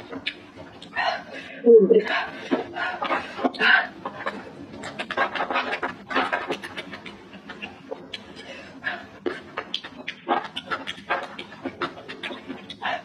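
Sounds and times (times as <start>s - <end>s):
mouth smacking while chewing: 4.2s - 8.5s, 9.3s - 13.0s.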